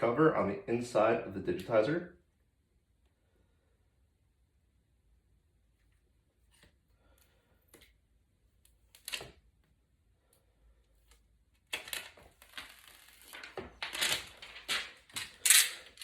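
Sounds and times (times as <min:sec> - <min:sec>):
plastic film peeling: 0:11.7 - 0:16.0.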